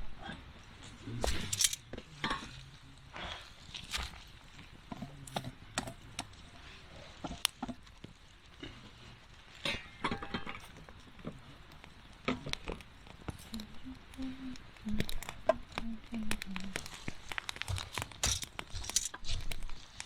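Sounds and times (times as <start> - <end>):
campfire crackling and popping: 0.5 - 20.0.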